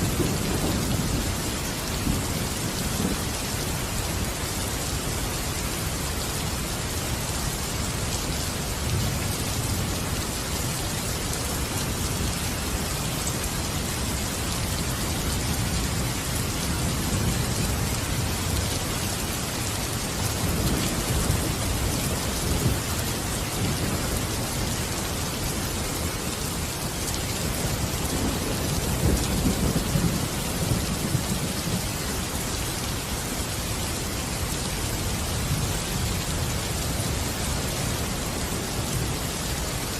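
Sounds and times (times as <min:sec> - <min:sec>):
thunder rumbling: 0:00.0 - 0:03.3, 0:27.4 - 0:32.5
steady rain: 0:00.0 - 0:39.9.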